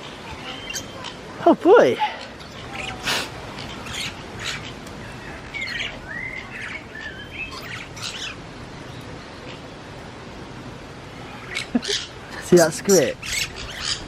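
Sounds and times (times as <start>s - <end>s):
birds chirping: 0.0s - 14.0s
whistled bird calls: 3.6s - 8.4s.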